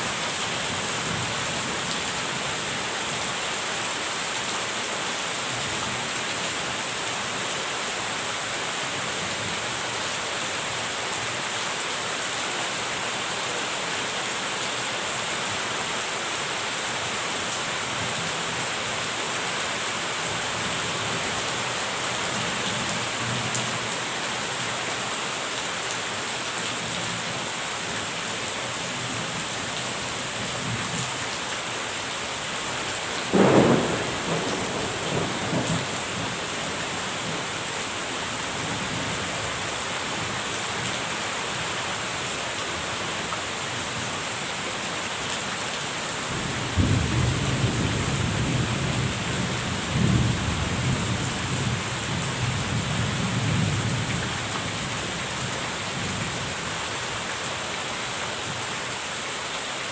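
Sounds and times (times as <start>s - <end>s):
steady rain: 0.0s - 59.9s
thunder rumbling: 33.2s - 37.5s.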